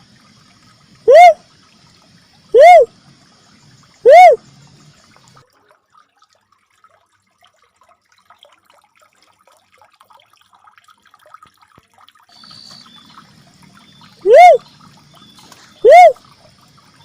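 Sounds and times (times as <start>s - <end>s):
soft ticks and trickling: 0.0s - 17.0s
high steady tone: 14.3s - 14.6s.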